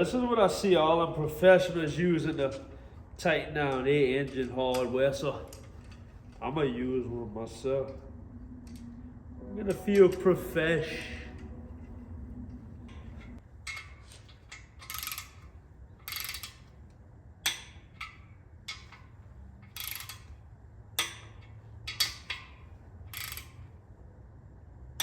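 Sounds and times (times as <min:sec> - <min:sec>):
torque wrench ratcheting: 0:12.9 - 0:20.4, 0:21.0 - 0:23.7.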